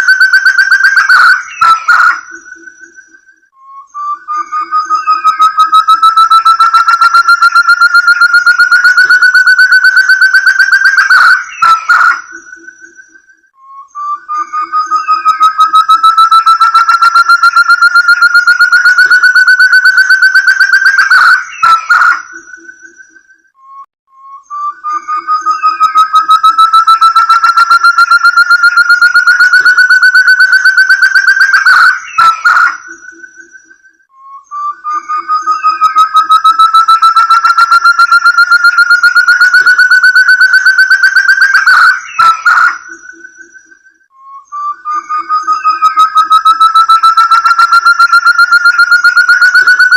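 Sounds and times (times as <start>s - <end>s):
partridge whistled call: 24.3s - 49.9s.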